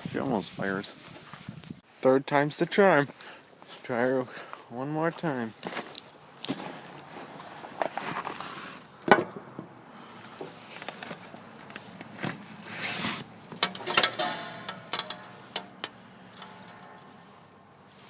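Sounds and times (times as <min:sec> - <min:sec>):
short rustling scrapes: 0:06.6 - 0:08.9, 0:12.1 - 0:13.3
sharp clicks and knocks: 0:13.6 - 0:17.1.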